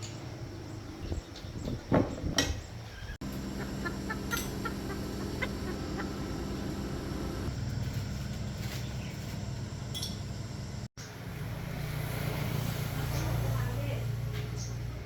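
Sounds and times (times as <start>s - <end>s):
motor humming: 3.2s - 10.9s
chickens clucking: 3.3s - 7.5s.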